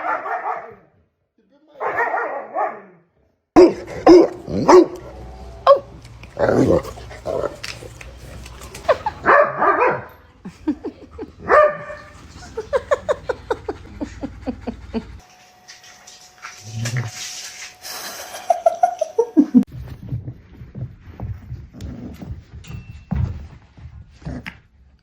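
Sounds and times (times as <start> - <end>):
dog barking: 0.0 - 1.0, 1.8 - 3.0, 3.6 - 6.0, 9.2 - 10.2, 11.4 - 12.1.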